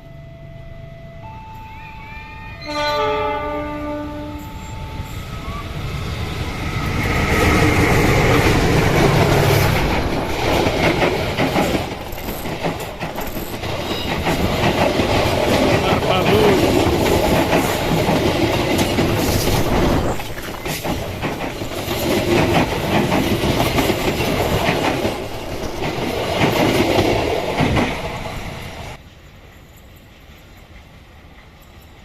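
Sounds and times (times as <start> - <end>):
train horn: 0.0 - 5.8
train passing rumble: 0.0 - 32.0
wheels clacking over rail joints: 6.0 - 29.0.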